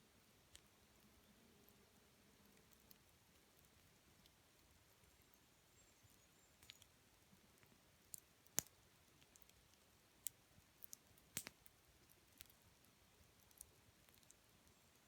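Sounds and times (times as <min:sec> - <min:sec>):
campfire wood crackling: 0:00.1 - 0:15.0.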